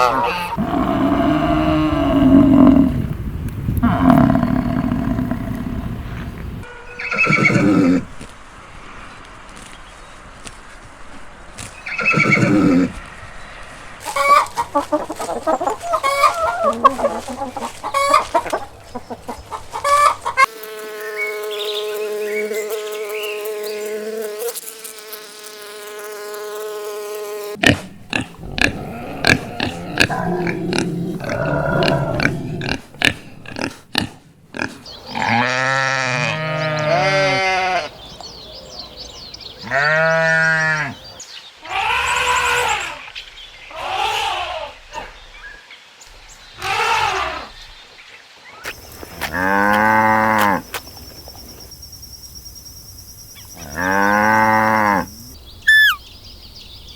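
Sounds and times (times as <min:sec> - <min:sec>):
long held animal call: 0:06.9 - 0:08.1, 0:28.4 - 0:32.8, 0:53.6 - 0:56.1
poultry clucking: 0:14.0 - 0:20.5
animal bleating: 0:27.6 - 0:37.9, 0:39.6 - 0:41.0.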